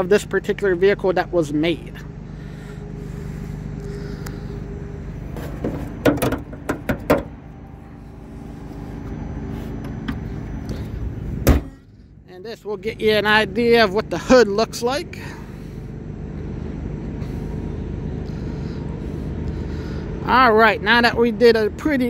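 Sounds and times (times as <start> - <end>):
car engine idling: 0.0 - 22.0
clicks and knocks from car hood: 5.4 - 7.3.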